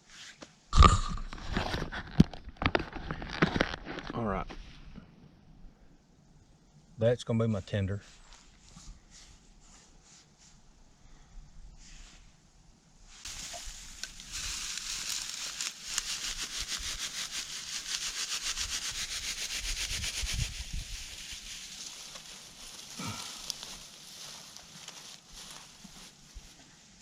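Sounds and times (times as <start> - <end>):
tinder scraped by hand: 13.2 - 23.1.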